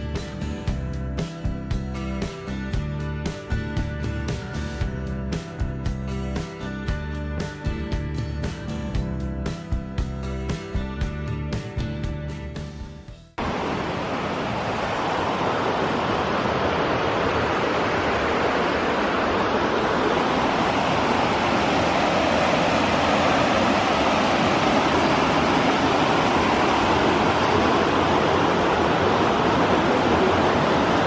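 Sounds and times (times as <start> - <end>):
river water rushing: 13.4 - 31.0.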